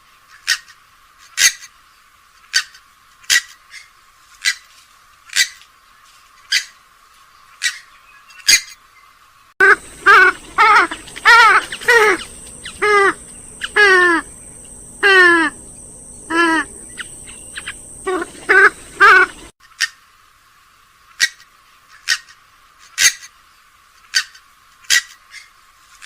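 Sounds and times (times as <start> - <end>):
steady high-pitched hiss: 0.0 - 26.0
waterbird calling: 9.6 - 19.5.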